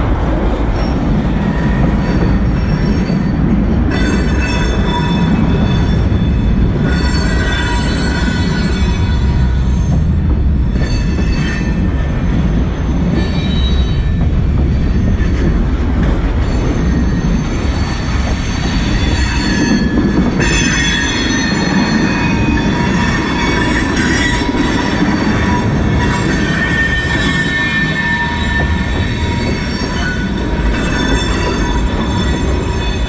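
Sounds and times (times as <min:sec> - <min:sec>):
steel wheels rumbling on rail: 0:00.0 - 0:33.0
wheels squealing: 0:00.7 - 0:33.0.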